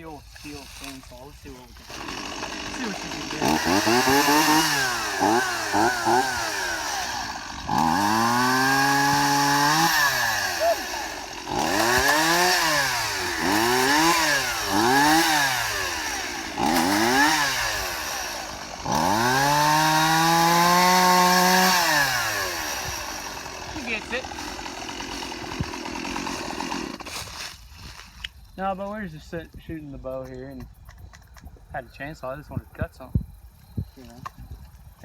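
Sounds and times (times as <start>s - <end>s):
chainsaw revving: 0.4s - 28.0s.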